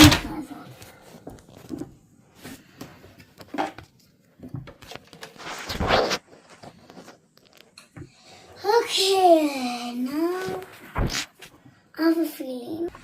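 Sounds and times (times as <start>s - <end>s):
objects knocking and rustling: 0.0s - 8.1s.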